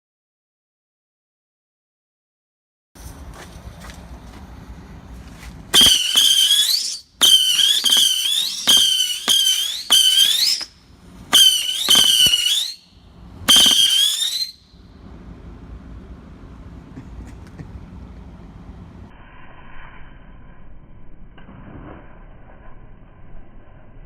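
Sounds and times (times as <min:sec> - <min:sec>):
firework rocket pops: 0:05.7 - 0:12.8, 0:13.5 - 0:14.6
firework rocket whistles: 0:05.7 - 0:14.8, 0:19.1 - 0:24.0.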